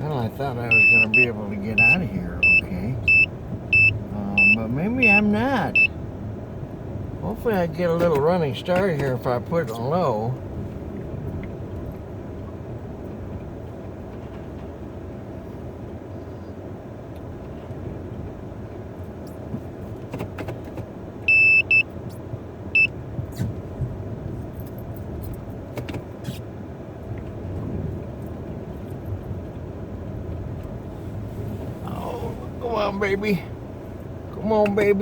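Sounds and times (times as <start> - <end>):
car engine running under load: 0.0 - 35.0
loud electronic beeps: 0.7 - 5.9, 21.3 - 21.8.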